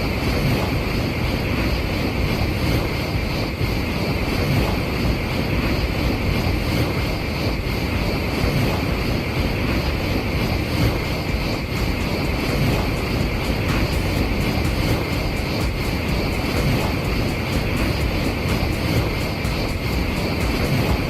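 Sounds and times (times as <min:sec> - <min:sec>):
train passing at speed: 0:00.0 - 0:21.0.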